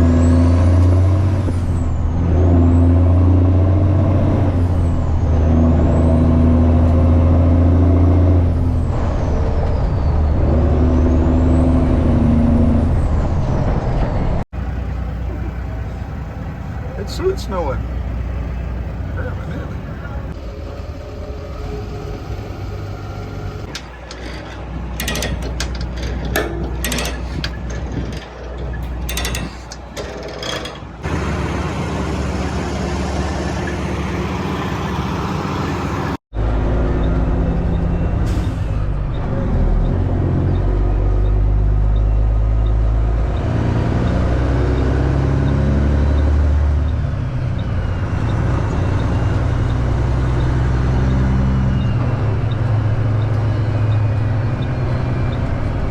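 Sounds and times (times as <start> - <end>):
loud truck engine shifting gears: 0.0 - 55.9
sharp clicks and rattles: 23.6 - 32.2.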